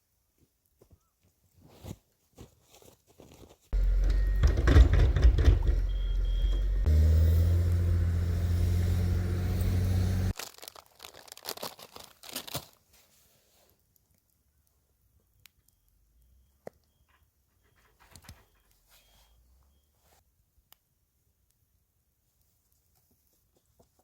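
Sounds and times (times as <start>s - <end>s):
clicks: 3.8s - 6.9s
low engine hum: 3.8s - 10.3s.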